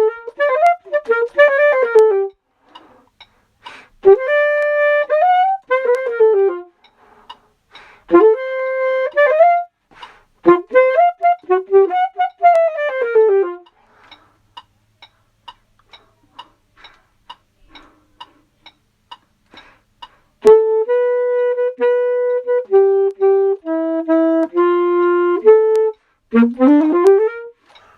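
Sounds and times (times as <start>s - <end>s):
reed instrument melody: 0.0s - 3.0s, 4.0s - 7.1s, 8.1s - 13.7s, 20.4s - 27.9s.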